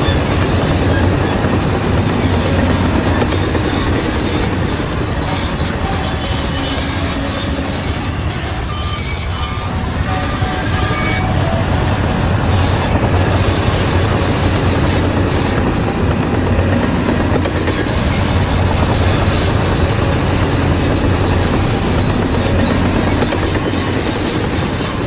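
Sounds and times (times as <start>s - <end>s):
bulldozer diesel engine running: 0.0s - 25.0s
steel tracks squealing: 0.0s - 25.0s.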